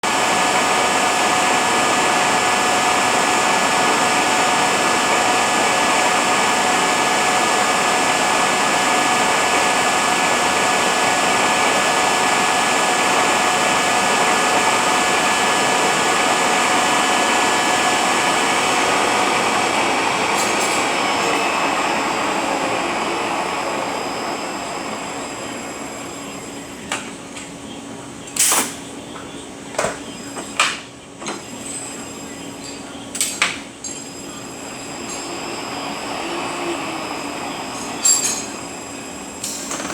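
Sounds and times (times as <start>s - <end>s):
sharp metal clanks: 38.0s - 38.6s.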